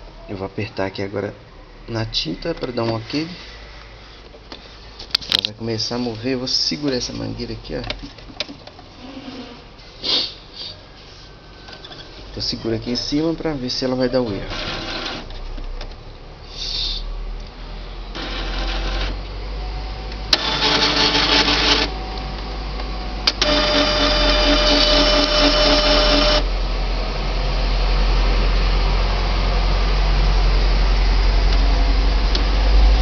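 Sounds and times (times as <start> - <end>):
printer motors whirring: 14.2 - 15.3, 18.1 - 19.2, 20.3 - 22.0, 23.3 - 26.5.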